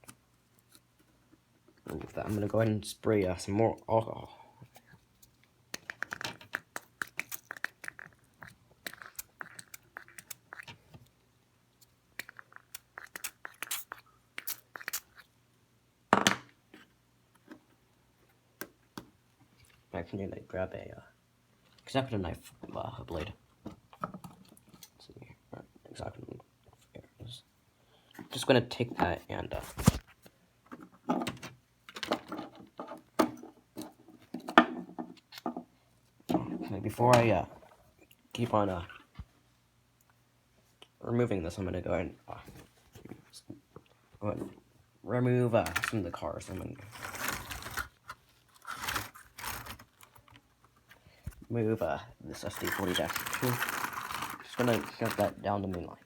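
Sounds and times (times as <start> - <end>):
model scenery crunching and crackling: 45.6 - 50.8, 52.3 - 56.0.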